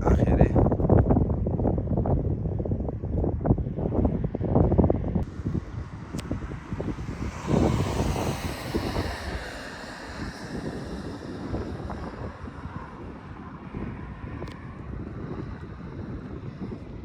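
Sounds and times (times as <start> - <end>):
wind buffeting microphone: 0.0 - 17.0
broad rushing sound: 5.2 - 17.0.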